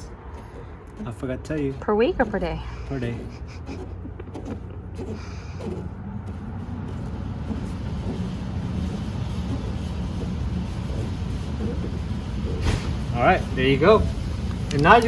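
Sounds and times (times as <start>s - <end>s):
vehicle motor rumbling: 0.0s - 15.0s.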